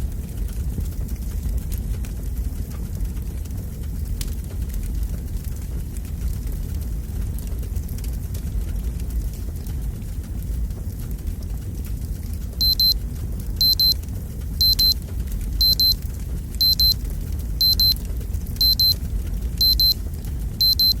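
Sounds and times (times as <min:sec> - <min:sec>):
fireplace fire crackling: 0:00.0 - 0:21.0
alarm clock beeping: 0:12.6 - 0:13.0, 0:13.6 - 0:14.0, 0:14.6 - 0:15.0, 0:15.6 - 0:16.0, 0:16.6 - 0:17.0, 0:17.6 - 0:18.0, 0:18.6 - 0:19.0, 0:19.6 - 0:20.0, 0:20.6 - 0:21.0.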